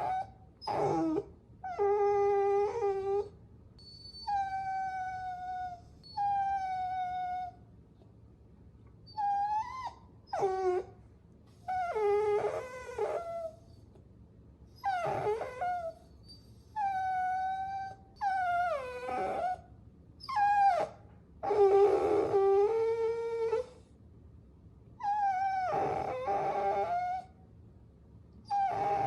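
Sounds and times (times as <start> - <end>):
puppy whining: 0.0 - 7.6, 9.0 - 14.0, 14.7 - 23.9, 25.0 - 27.4, 28.4 - 29.0.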